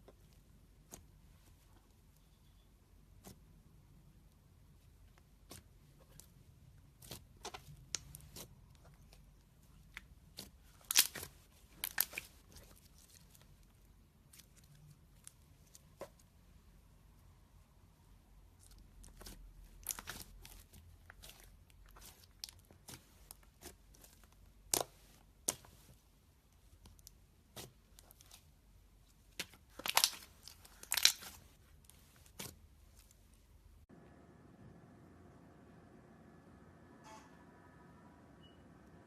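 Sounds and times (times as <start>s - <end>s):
slime crackling and popping: 9.8s - 16.2s, 18.6s - 25.8s, 29.2s - 33.1s.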